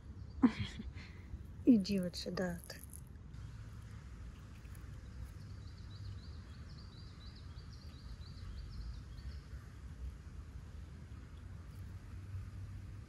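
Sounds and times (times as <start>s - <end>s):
low outdoor rumble: 0.0s - 13.0s
small bird chirping: 4.3s - 9.8s.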